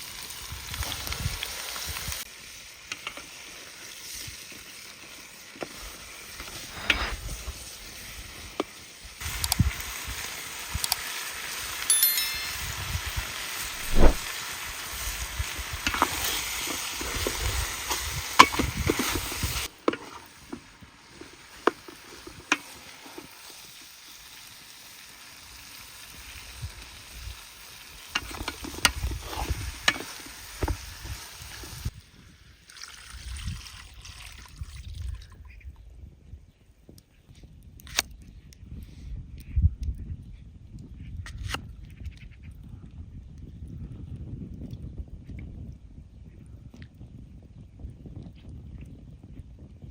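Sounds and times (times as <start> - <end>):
food sizzling in hot oil: 0.0 - 34.3.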